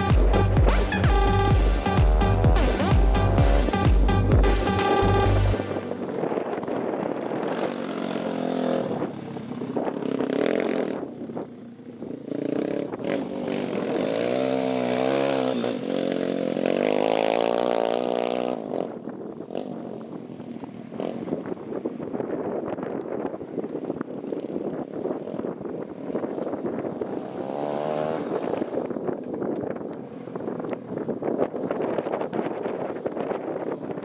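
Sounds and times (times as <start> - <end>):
pit bike engine revving: 0.0 - 6.4, 7.0 - 11.1, 12.2 - 19.7.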